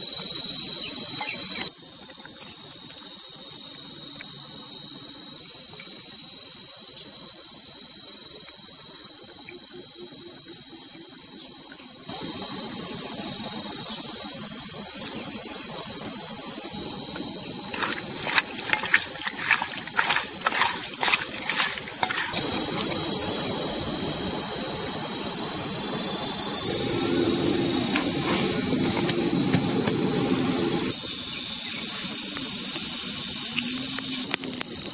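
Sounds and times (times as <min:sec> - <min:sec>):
insects trilling: 0:00.0 - 0:34.9.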